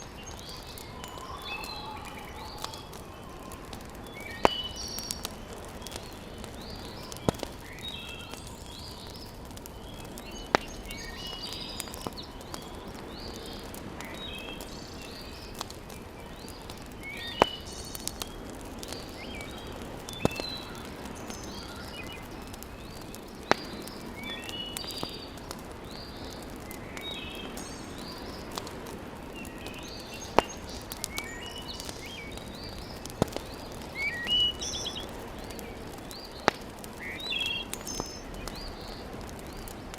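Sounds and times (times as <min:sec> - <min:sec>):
birds chirping: 0:00.0 - 0:39.9
wood fire crackling and popping: 0:00.0 - 0:39.9.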